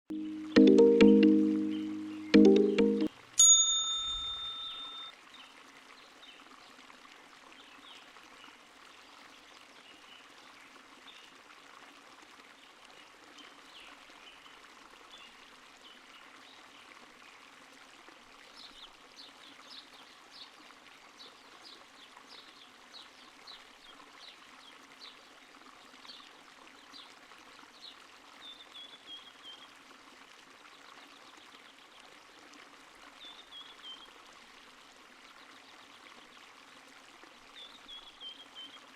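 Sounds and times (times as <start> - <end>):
small stream trickling: 3.1 - 38.9
short high-pitched chirps: 3.8 - 5.1.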